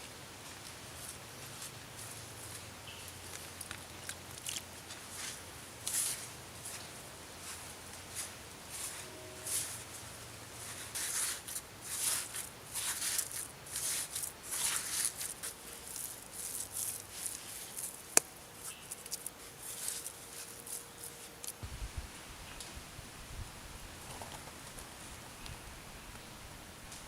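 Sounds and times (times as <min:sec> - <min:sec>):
scraping and rustling handling: 0:03.3 - 0:21.6.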